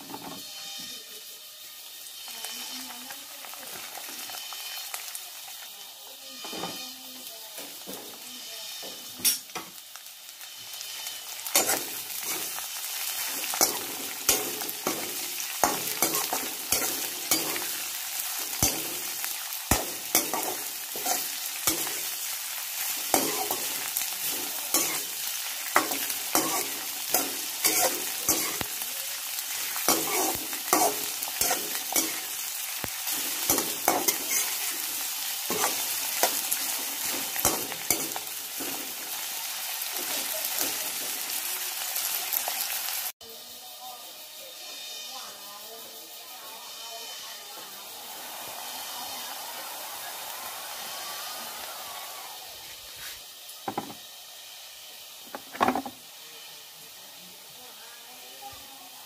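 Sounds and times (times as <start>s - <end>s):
onions sizzling in hot oil: 0.0s - 59.0s
metal spatula scraping a pan: 0.1s - 1.0s, 10.4s - 41.3s.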